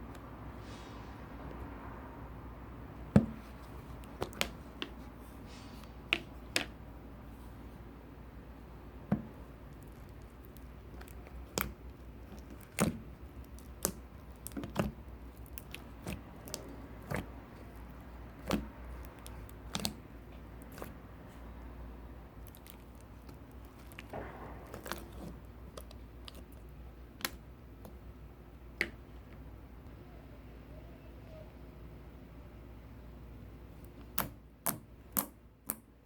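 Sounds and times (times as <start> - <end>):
slime squished by hand: 9.2 - 21.5, 22.3 - 28.0.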